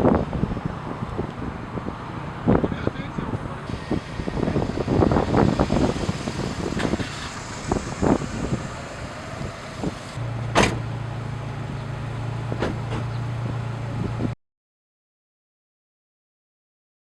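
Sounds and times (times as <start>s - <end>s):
car knocks and clicks: 12.5s - 13.2s.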